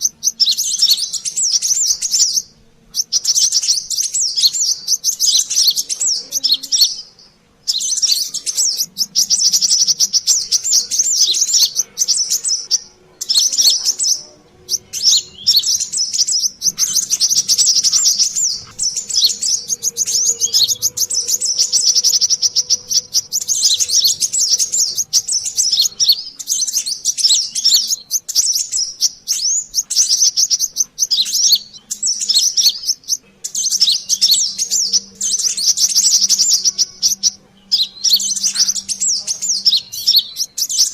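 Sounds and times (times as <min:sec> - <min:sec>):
sunbird twittering: 0:00.0 - 0:40.9.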